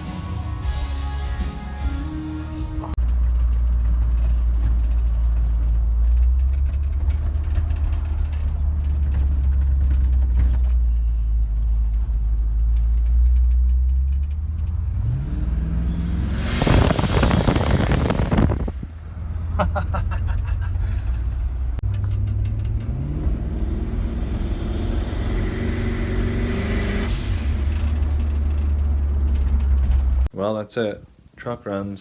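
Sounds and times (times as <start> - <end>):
loud burst of noise: 16.4 - 18.8.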